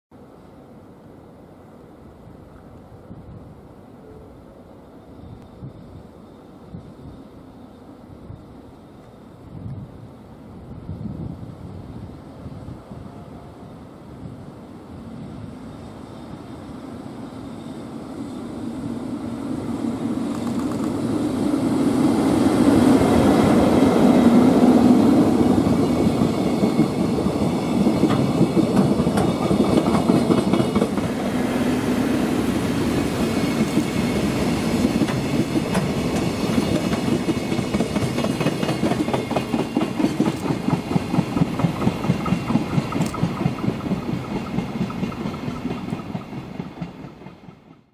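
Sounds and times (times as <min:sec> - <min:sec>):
locomotive rumble passing: 0:14.8 - 0:47.9.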